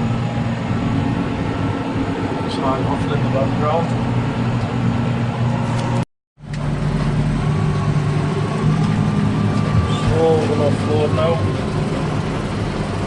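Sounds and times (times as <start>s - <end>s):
faint steady whine: 0.0s - 13.0s
tractor engine droning: 0.0s - 13.0s.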